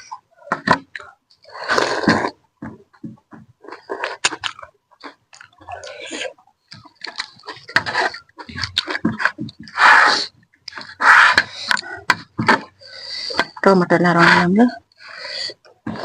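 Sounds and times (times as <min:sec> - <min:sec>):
noodles being chewed and slurped: 0:03.6 - 0:13.6.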